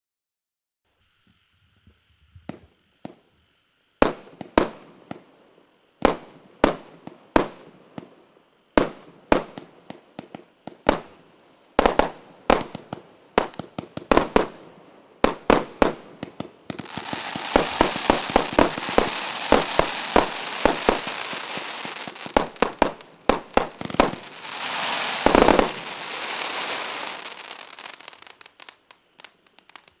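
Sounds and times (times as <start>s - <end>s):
fireworks crackling and hissing: 0.9s - 30.0s
heavy fireworks burst: 4.0s - 5.3s, 6.0s - 30.0s
fireworks bangs: 15.2s - 30.0s.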